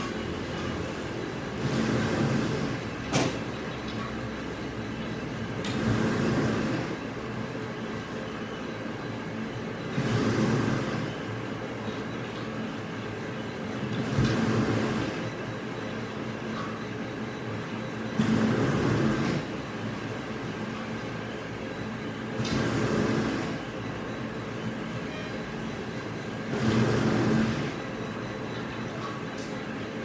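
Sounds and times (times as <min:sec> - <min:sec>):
machinery humming: 0:17.0 - 0:30.0.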